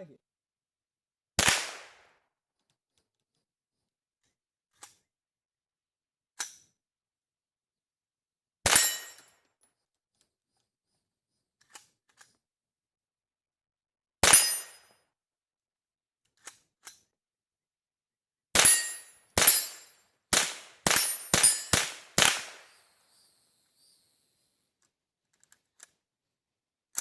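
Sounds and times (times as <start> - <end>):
rifle shot with ringing tail: 20.4 - 23.9.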